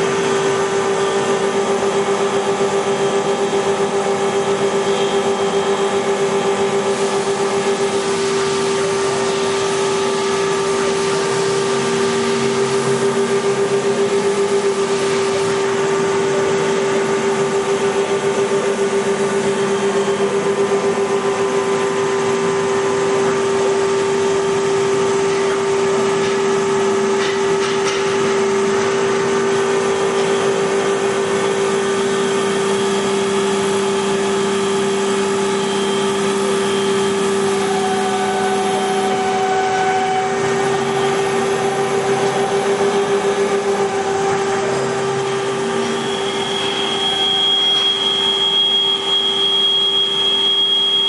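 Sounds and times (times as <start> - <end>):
high machine whine: 0.0 - 51.0.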